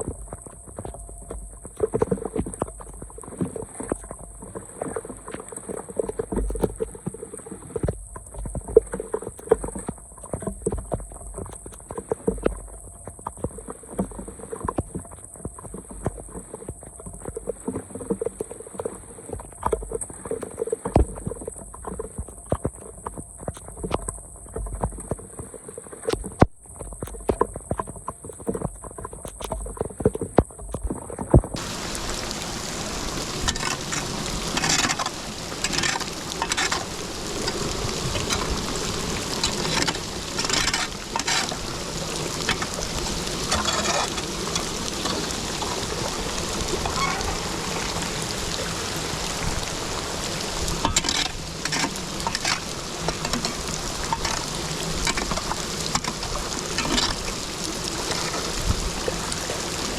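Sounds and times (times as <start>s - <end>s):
water splashes: 0.0s - 59.9s
water rushing down a drain: 28.6s - 59.9s.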